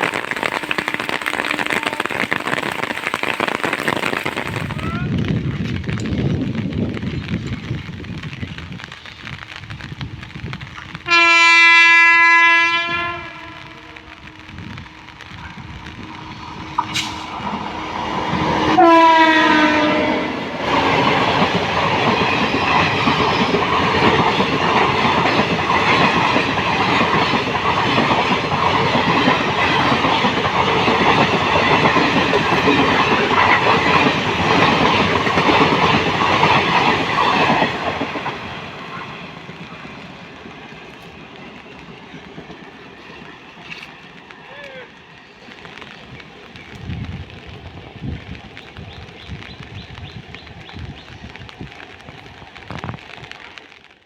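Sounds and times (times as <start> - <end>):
train wheels rushing on rails: 0.0 - 54.0
train horn: 0.3 - 3.9, 11.1 - 20.6.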